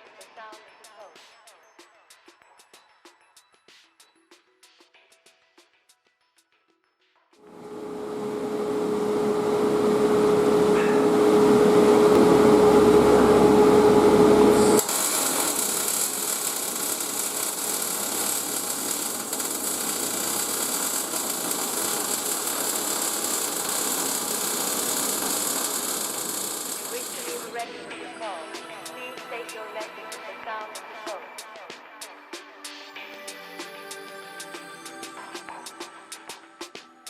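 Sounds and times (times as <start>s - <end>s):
welding on steel: 14.2s - 27.7s.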